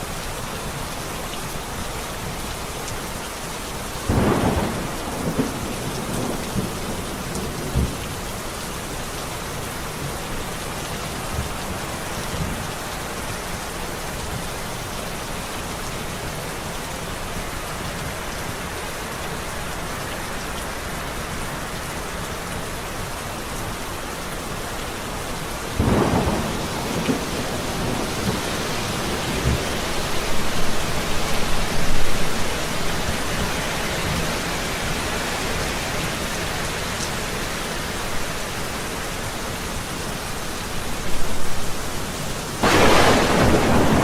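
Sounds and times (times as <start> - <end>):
steady rain falling: 0.0 - 44.0
thunder: 4.1 - 8.0, 25.8 - 30.8, 42.6 - 44.0.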